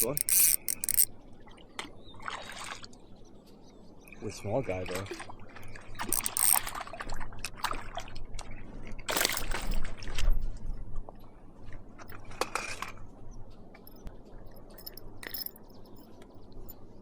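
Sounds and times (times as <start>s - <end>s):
small clicks: 0.0s - 1.1s, 6.0s - 6.8s, 9.1s - 9.8s, 13.9s - 16.0s
water splashing and sloshing: 2.2s - 2.9s, 4.8s - 8.5s.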